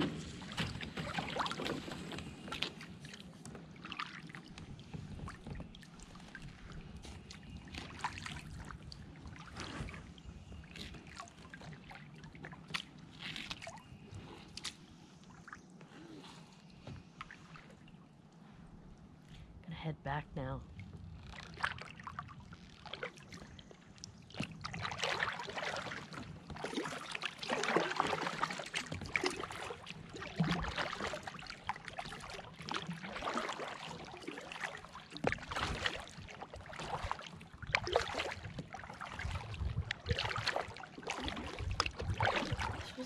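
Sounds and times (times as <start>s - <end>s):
kayak paddle strokes in water: 0.0s - 19.2s, 20.8s - 43.0s
water splashing and dripping: 20.9s - 43.0s.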